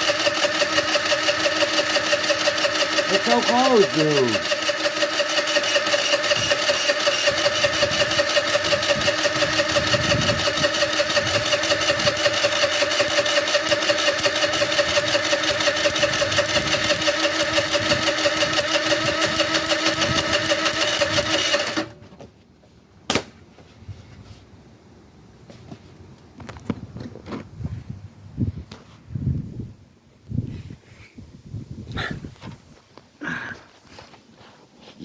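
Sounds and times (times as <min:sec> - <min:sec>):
starter cranking scooter engine: 0:00.0 - 0:22.1.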